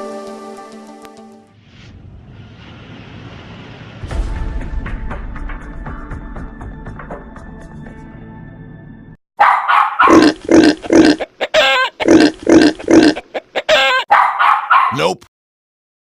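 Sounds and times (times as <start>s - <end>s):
dog barking: 9.4s - 10.2s, 13.7s - 15.0s
dog whining: 9.4s - 10.2s, 13.7s - 15.0s
dog yelping: 9.4s - 10.2s, 11.2s - 12.0s, 13.2s - 15.0s.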